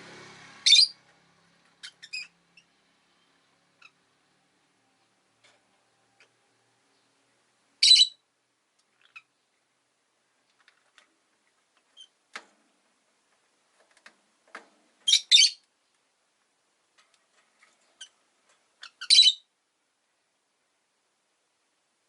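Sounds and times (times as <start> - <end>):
lovebirds calling: 0.6 - 4.2, 6.0 - 8.2, 8.9 - 9.6, 15.0 - 15.7, 17.9 - 19.5
soft bird chirps: 1.7 - 4.1, 5.9 - 8.2, 18.8 - 19.5.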